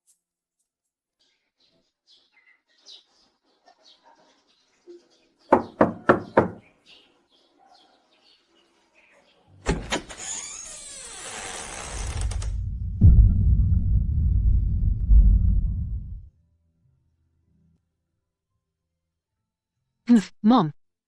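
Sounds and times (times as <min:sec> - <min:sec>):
knocks on a door: 0:05.5 - 0:06.6
faint chirping: 0:06.6 - 0:09.6
low rumbling: 0:12.0 - 0:16.3.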